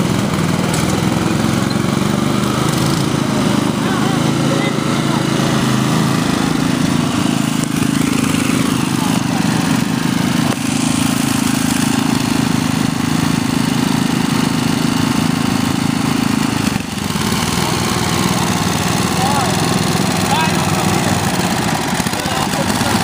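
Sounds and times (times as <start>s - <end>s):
lawn tractor engine running: 0.0s - 23.0s.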